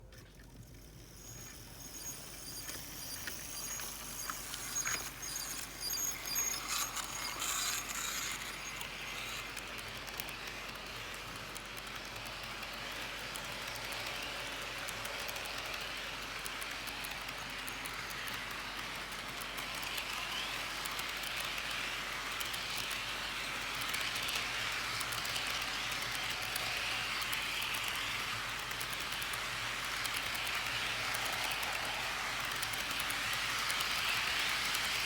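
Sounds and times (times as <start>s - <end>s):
thin high whine: 0.0s - 9.9s
model train clicks: 0.0s - 35.0s
model train whirring on rails: 0.0s - 35.0s.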